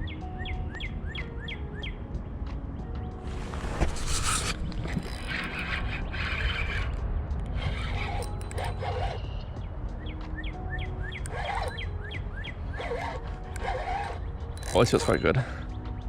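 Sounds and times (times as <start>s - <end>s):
close scraping and rattling: 3.2s - 9.1s, 12.7s - 15.3s.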